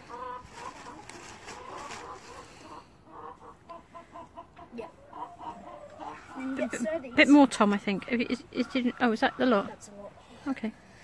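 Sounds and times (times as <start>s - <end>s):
bird clucking: 0.0s - 10.9s
dry twigs and paper rustling: 0.1s - 2.8s.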